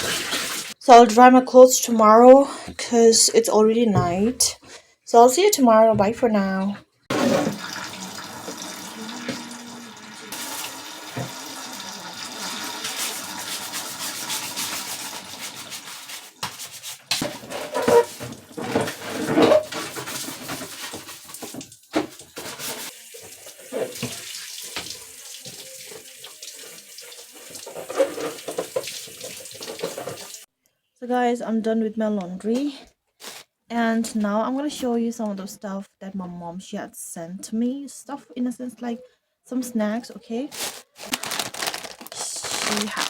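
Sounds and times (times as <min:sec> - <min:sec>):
tap water running into sink: 0:00.0 - 0:00.8, 0:07.1 - 0:30.5
water splashing: 0:00.0 - 0:00.8, 0:07.1 - 0:30.4.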